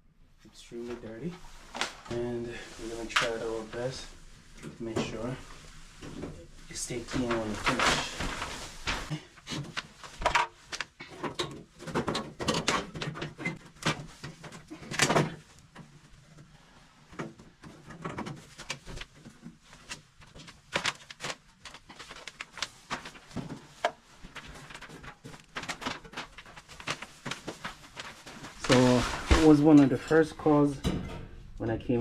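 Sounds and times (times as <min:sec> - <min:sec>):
objects clicking and clattering: 0:07.1 - 0:16.5, 0:17.1 - 0:30.0.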